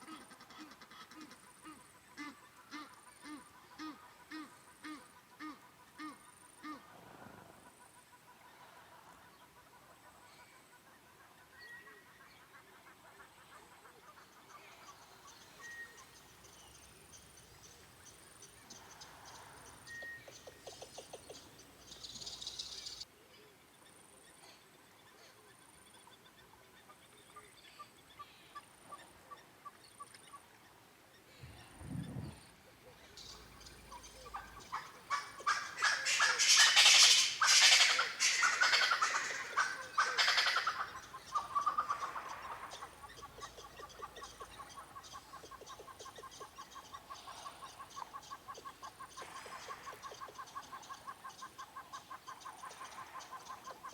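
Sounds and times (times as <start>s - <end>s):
birds calling: 14.7s - 23.0s, 33.2s - 53.9s.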